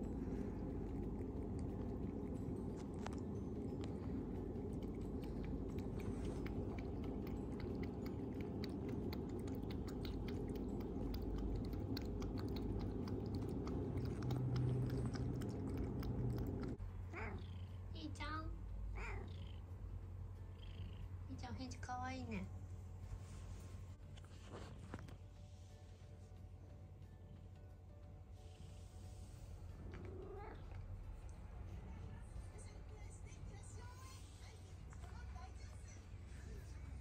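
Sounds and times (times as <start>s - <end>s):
cat purring: 0.0s - 37.0s
cat meowing: 17.1s - 17.6s, 18.9s - 19.6s.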